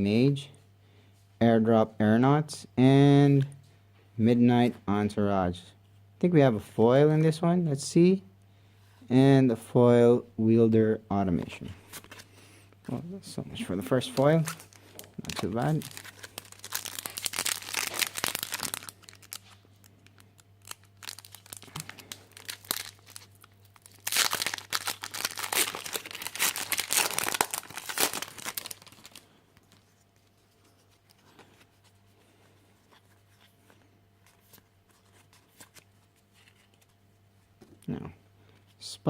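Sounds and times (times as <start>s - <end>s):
foil wrapper tearing and crinkling: 14.2s - 29.8s.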